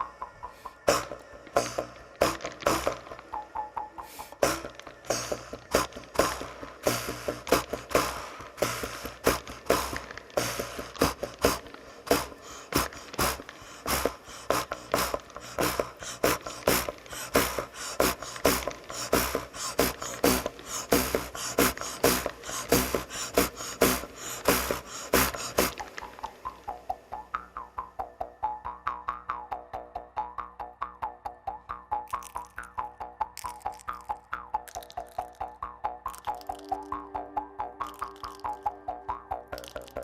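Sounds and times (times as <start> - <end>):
sharp percussive strokes: 0.0 - 28.0.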